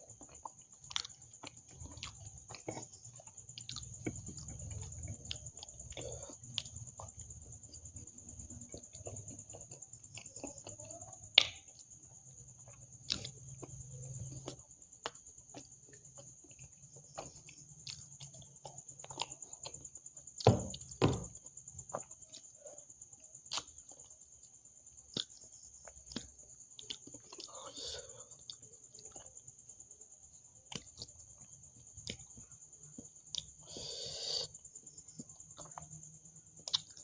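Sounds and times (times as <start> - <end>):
wet chewing: 0.1 - 37.0
louder knocks: 20.5 - 21.3.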